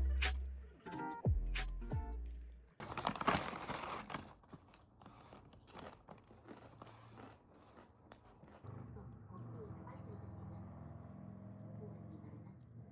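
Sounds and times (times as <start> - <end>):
crunching bite: 2.8 - 8.8
person chewing crunchy food: 2.9 - 8.8.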